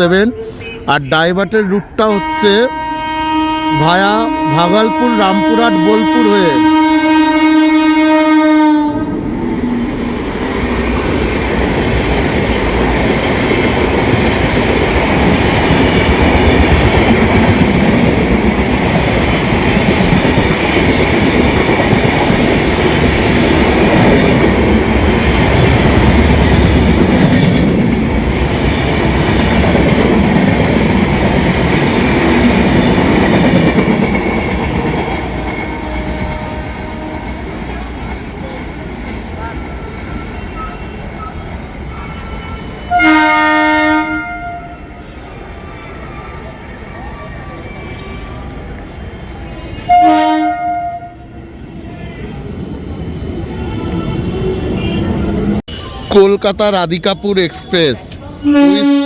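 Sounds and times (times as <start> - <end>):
train coaches rumbling and clattering: 0.0 - 59.0
locomotive horn: 2.0 - 9.2, 35.6 - 37.6, 41.9 - 45.3, 49.7 - 51.4, 53.5 - 55.6, 58.4 - 59.0.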